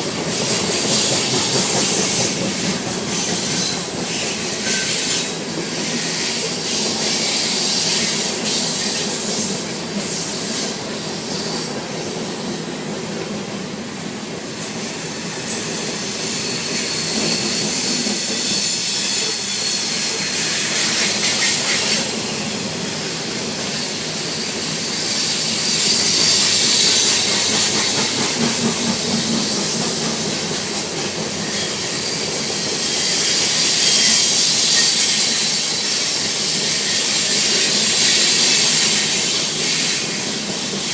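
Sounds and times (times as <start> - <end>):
train wheels rolling on rail: 0.0 - 40.9
high-pitched wheel squeal: 15.4 - 22.4.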